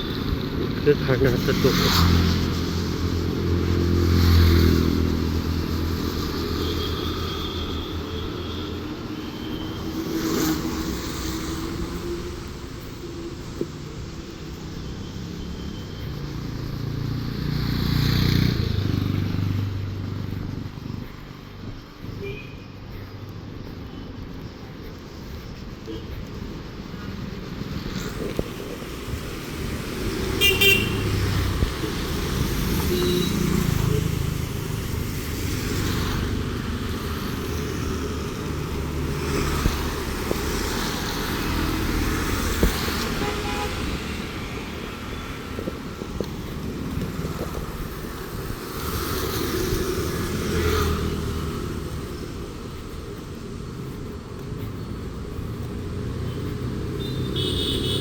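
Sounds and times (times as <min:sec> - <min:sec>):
vehicles passing: 0:00.0 - 0:58.0
car horn toot: 0:30.4 - 0:31.2, 0:43.1 - 0:43.8, 0:57.0 - 0:58.0.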